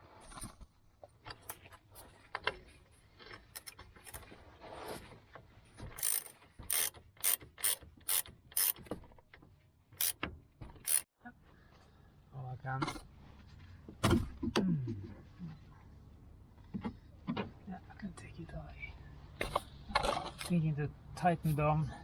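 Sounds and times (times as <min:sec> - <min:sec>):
ratchet wrench clicking: 0:06.0 - 0:08.8, 0:10.0 - 0:10.2, 0:10.8 - 0:11.0.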